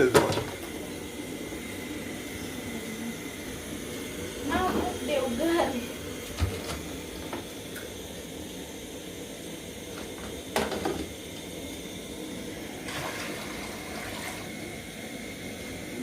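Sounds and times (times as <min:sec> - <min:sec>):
water pouring into a pot: 0:12.7 - 0:14.8.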